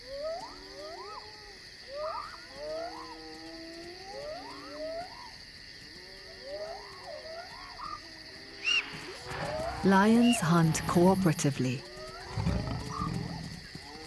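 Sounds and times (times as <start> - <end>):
high insect trill: 4.9 - 14.0.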